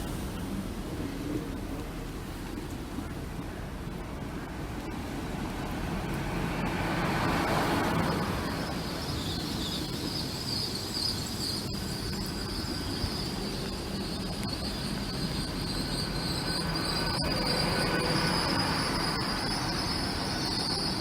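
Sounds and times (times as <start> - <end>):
train rumbling: 0.0 - 21.0
high-pitched wheel squeal: 6.4 - 21.0.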